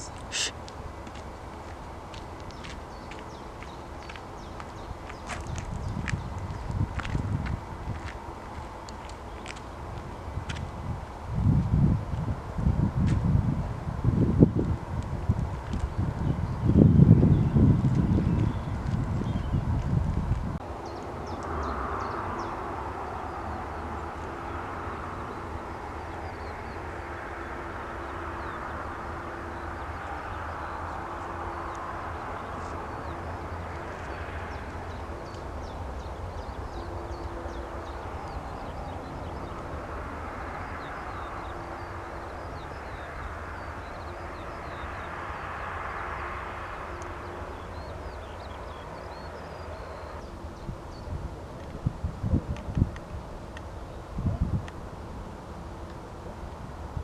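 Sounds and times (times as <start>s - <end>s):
wind noise: 0.0s - 27.0s, 46.3s - 57.0s
small birds chirping: 1.6s - 7.3s.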